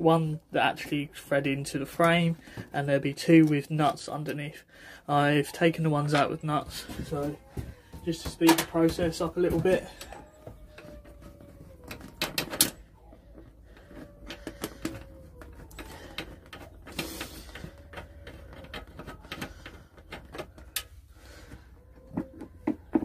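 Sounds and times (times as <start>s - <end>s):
metal clicks and knocks: 8.0s - 21.0s.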